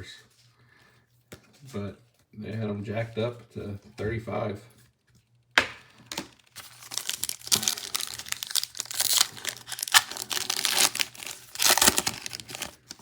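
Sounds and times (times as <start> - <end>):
foil wrapper tearing and crinkling: 6.2 - 13.0.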